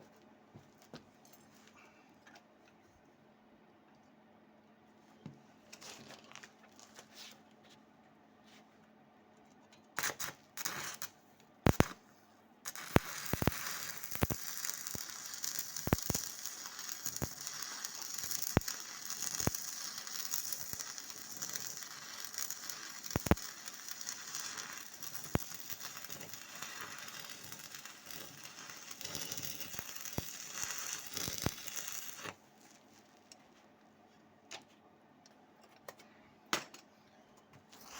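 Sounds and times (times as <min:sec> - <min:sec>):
welding arc crackling: 0:10.0 - 0:12.0, 0:12.7 - 0:32.7.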